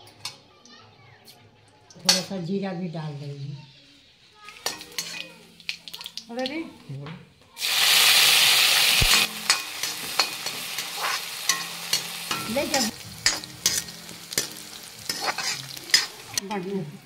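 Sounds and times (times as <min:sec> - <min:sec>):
spices sizzling in hot oil: 0:03.7 - 0:06.8, 0:07.6 - 0:17.0
metal ladle scraping pan: 0:04.5 - 0:05.5, 0:09.0 - 0:16.4.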